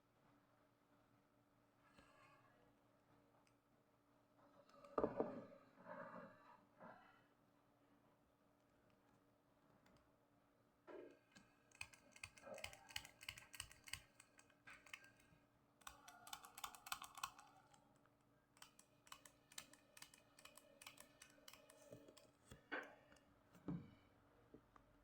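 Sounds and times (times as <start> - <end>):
faint rapid clicking and tapping: 11.1 - 23.3.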